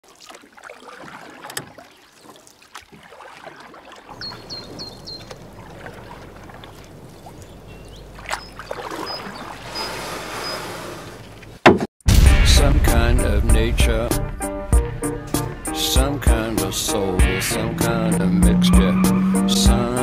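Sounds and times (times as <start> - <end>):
running water: 0.0 - 11.6
wind: 0.0 - 20.0.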